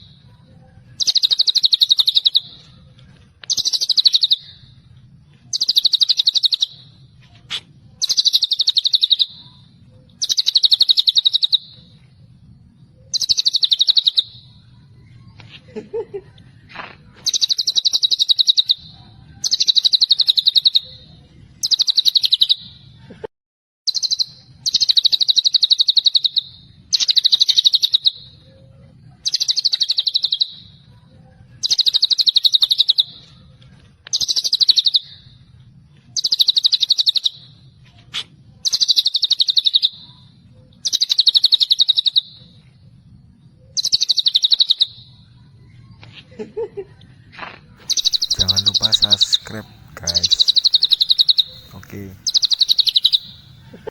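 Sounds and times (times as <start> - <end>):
bird singing rapid high trill: 1.0 - 2.7, 3.5 - 4.7, 5.5 - 6.9, 8.0 - 9.6, 10.2 - 12.0, 13.1 - 14.5, 17.2 - 18.8, 19.4 - 21.0, 21.6 - 22.7, 23.9 - 28.4, 29.2 - 30.7, 38.6 - 40.2, 43.8 - 45.1, 47.8 - 53.9.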